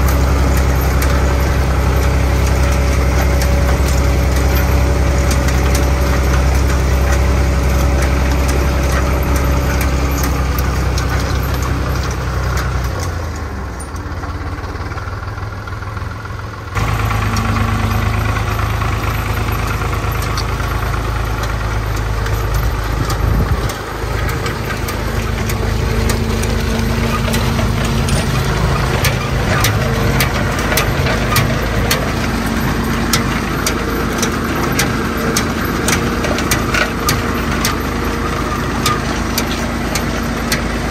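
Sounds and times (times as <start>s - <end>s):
tractor diesel engine clattering: 0.0s - 40.9s.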